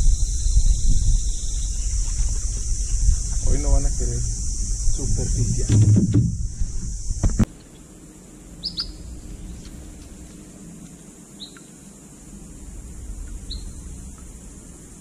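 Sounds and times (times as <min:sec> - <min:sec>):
sharp knocks: 0:05.5 - 0:06.6
bird chirping: 0:08.6 - 0:10.1, 0:11.4 - 0:12.0, 0:13.1 - 0:14.9.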